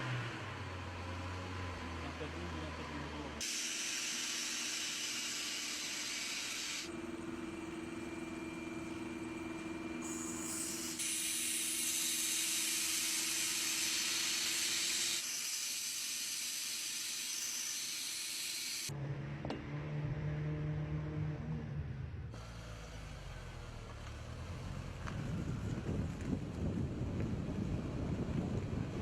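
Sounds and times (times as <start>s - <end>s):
engine hissing loudly: 1.8s - 7.1s, 10.0s - 18.9s.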